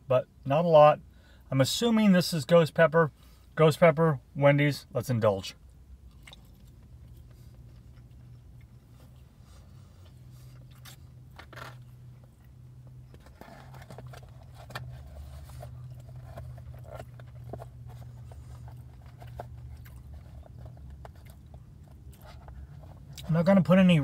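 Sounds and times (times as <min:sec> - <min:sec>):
steady low hum: 0:00.0 - 0:24.0
person chewing crunchy food: 0:06.0 - 0:23.3.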